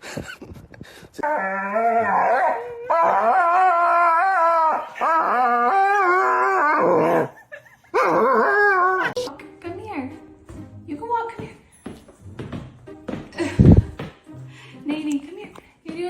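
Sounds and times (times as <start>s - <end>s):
dog howling: 1.2s - 7.4s, 8.0s - 9.3s.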